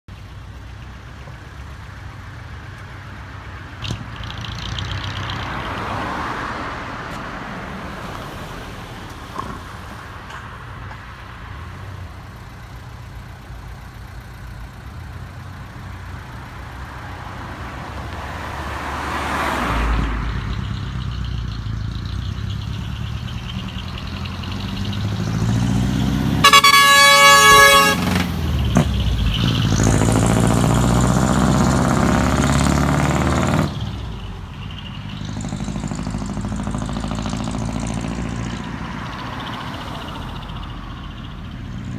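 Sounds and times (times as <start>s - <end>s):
truck engine rumble: 0.1s - 41.9s
truck air horn blast: 26.0s - 28.9s.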